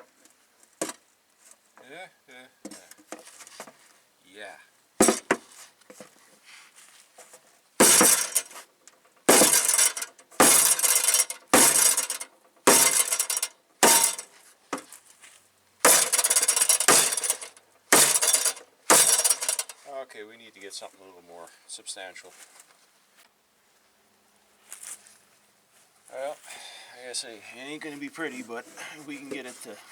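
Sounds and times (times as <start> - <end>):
metal clattering: 5.0 - 5.4, 7.8 - 8.6, 9.3 - 14.9, 15.9 - 19.8
sledge hammer striking metal: 5.0 - 5.4, 7.8 - 8.6, 9.3 - 14.3, 15.9 - 19.7.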